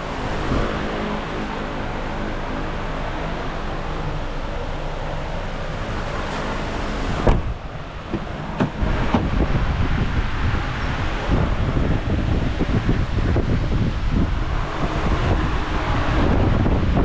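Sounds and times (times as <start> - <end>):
wind buffeting microphone: 0.0 - 2.9, 7.0 - 17.0
car engine idling: 0.0 - 15.1
sharp thump: 7.2 - 7.5.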